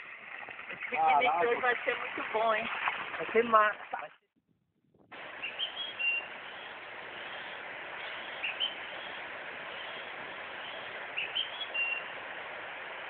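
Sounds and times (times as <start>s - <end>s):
steady background hiss: 5.1s - 13.0s
bird chirping: 5.4s - 12.1s.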